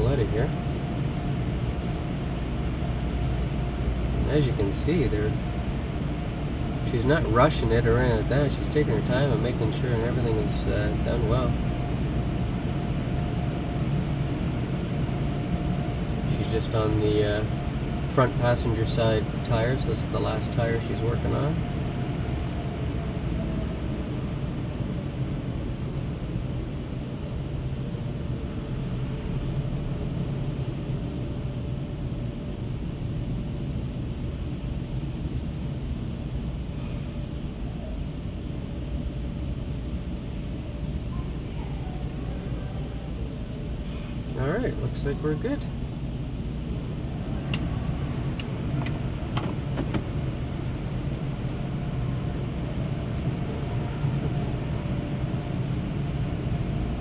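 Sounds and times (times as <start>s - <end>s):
minivan engine idling: 0.0s - 57.0s.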